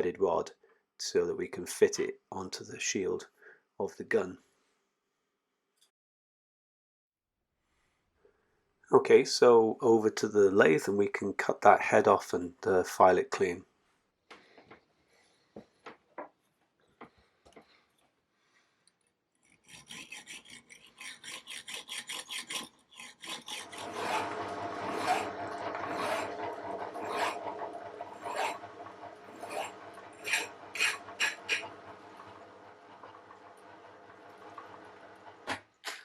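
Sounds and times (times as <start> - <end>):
file rasping on metal screw: 19.4 - 25.3, 25.9 - 26.4, 27.0 - 27.5, 28.2 - 28.6, 29.3 - 31.6
lathe humming: 23.2 - 35.6.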